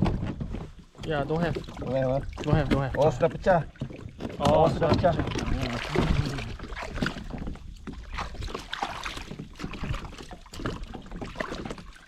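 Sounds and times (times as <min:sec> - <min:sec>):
knocks and clatter of gear: 0:00.0 - 0:01.2
water splashing: 0:00.0 - 0:12.0.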